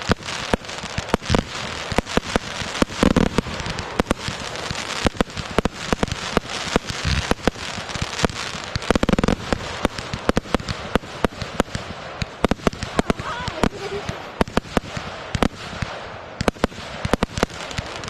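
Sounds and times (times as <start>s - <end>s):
fireworks crackling pops: 0.0s - 18.0s
fireworks low booms: 0.0s - 18.0s.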